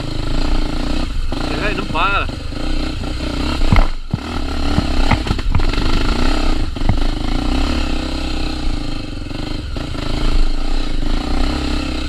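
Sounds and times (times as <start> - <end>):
motorcycle engine running: 0.0 - 12.0
sharp knocks: 3.6 - 5.8, 6.8 - 7.2.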